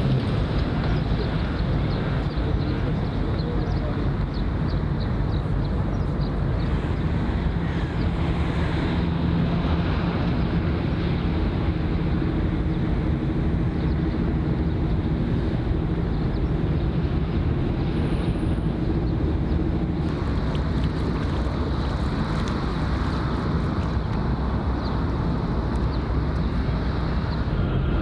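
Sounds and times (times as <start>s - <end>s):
low engine hum: 0.0s - 28.0s.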